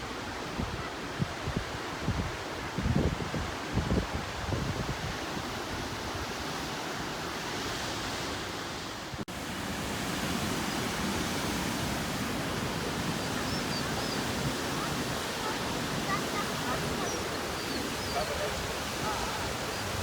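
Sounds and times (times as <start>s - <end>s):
waterfall rushing: 9.3s - 20.0s.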